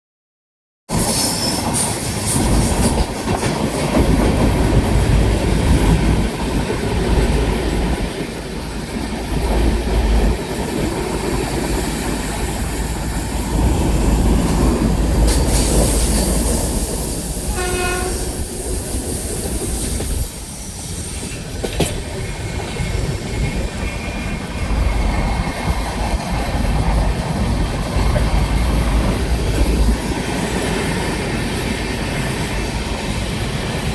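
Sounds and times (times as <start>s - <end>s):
train wheels rumbling on track: 0.9s - 33.9s
train horn blast: 17.5s - 18.5s.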